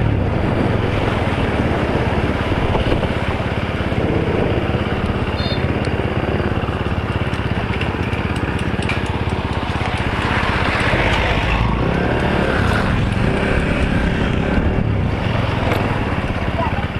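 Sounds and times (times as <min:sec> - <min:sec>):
rush of noise: 0:00.0 - 0:07.7, 0:08.3 - 0:16.9
motorcycle engine running: 0:00.0 - 0:16.9.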